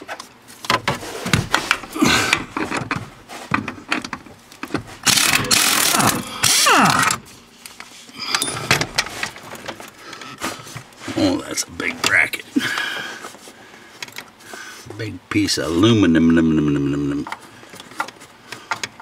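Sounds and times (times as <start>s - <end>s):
socket wrench ratcheting: 5.0s - 6.6s.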